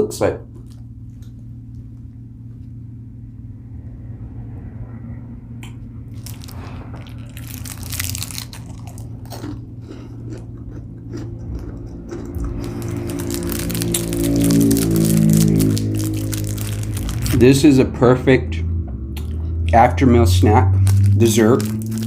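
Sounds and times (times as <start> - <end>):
steady low hum: 0.0 - 22.0
crunching and chewing chocolate: 6.2 - 17.4, 20.8 - 22.0.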